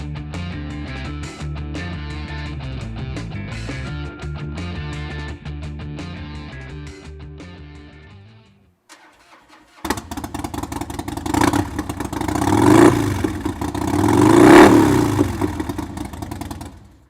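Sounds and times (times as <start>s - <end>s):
motorcycle engine starting: 8.9s - 17.0s
motorcycle engine idling and revving: 9.8s - 17.0s.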